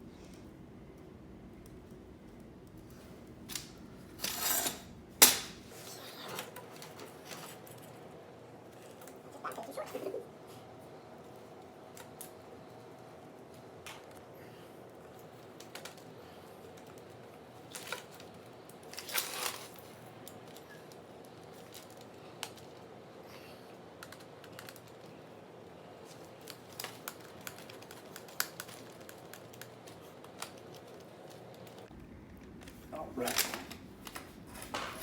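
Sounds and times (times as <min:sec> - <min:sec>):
rustling scrapes: 0:18.9 - 0:19.9.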